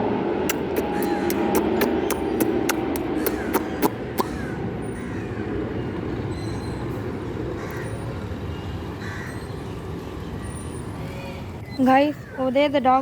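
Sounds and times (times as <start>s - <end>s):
traffic rumble: 0.0s - 13.0s
sharp evenly spaced knocks: 0.5s - 4.3s.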